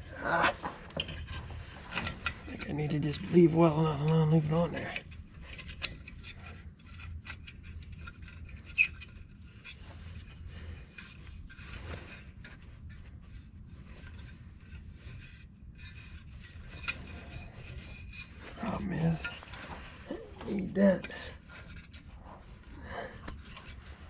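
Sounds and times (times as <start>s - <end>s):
hands rubbing and scraping: 5.5s - 24.0s.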